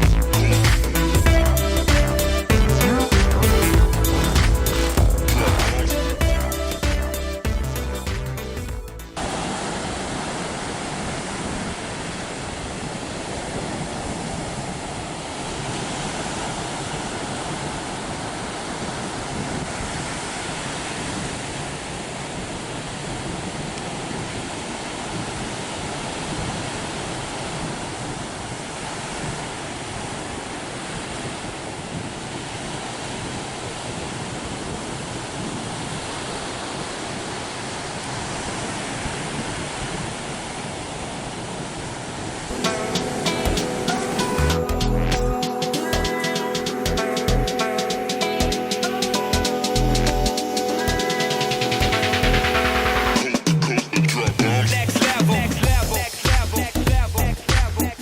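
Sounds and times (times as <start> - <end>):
wind: 0.0 - 58.0
surf breaking on a beach: 9.2 - 44.7.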